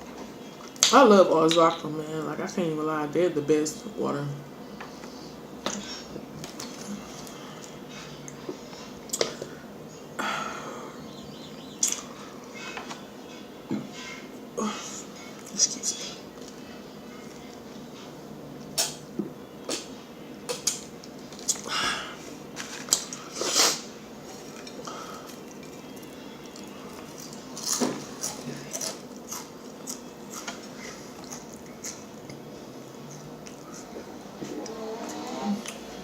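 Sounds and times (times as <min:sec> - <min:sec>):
low room hum: 0:00.0 - 0:36.0
crunchy chewing: 0:22.6 - 0:35.8.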